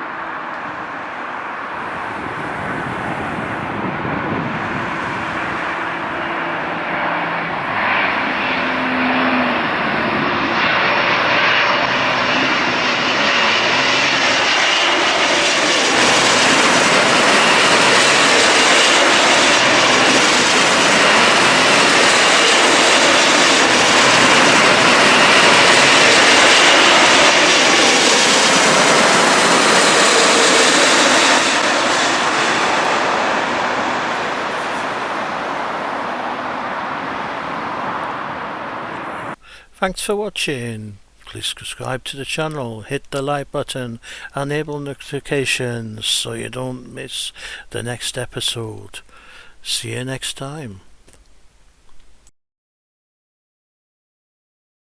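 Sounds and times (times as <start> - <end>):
jet airliner passing overhead: 0.0 - 39.4.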